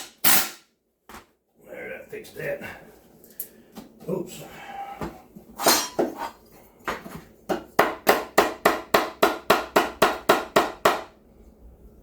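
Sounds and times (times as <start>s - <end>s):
hammer strikes on wood: 6.9s - 11.1s.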